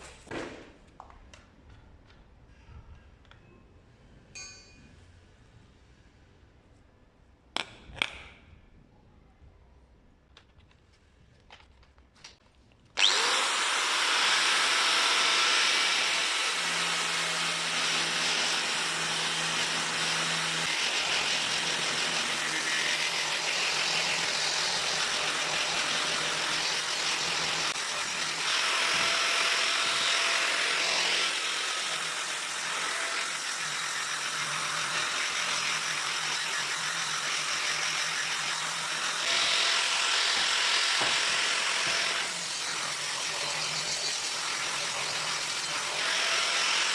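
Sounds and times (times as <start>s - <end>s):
power tool grinding steel rail: 13.0s - 46.9s.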